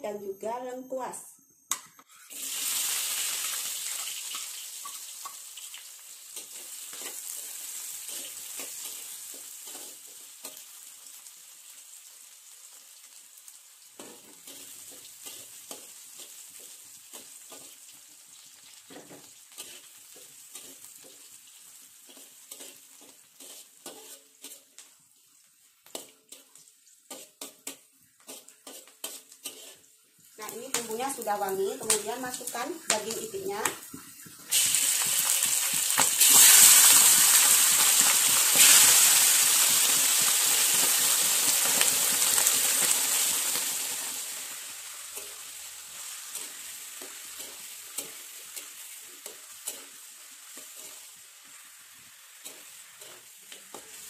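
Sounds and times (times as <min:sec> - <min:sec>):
garlic sizzling in hot oil: 0:02.1 - 0:54.0
metal spatula scraping wok: 0:06.3 - 0:10.8, 0:14.0 - 0:17.9, 0:18.9 - 0:24.9, 0:25.9 - 0:51.6, 0:52.2 - 0:54.0.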